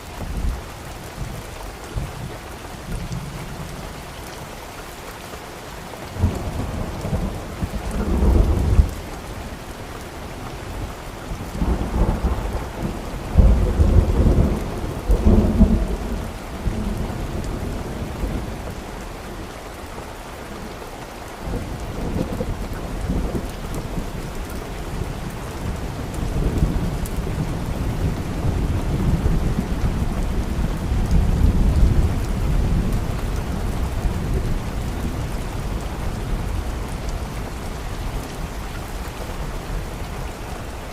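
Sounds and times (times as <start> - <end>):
steady rain: 0.0 - 40.9
thunder rumbling: 6.2 - 9.0, 11.4 - 18.8, 21.4 - 40.9.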